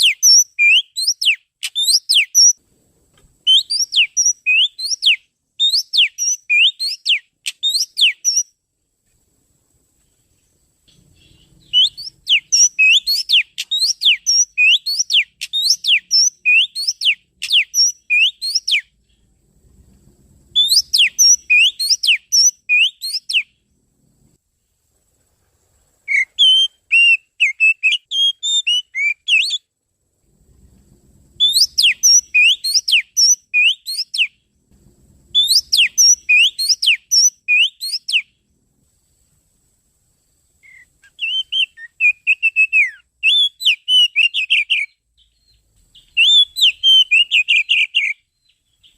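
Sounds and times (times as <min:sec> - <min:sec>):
bird song whistled notes: 0:00.0 - 0:02.6, 0:03.4 - 0:08.6, 0:10.1 - 0:19.3, 0:20.5 - 0:23.7, 0:26.0 - 0:29.7, 0:31.3 - 0:34.5, 0:35.3 - 0:38.4, 0:40.6 - 0:48.9.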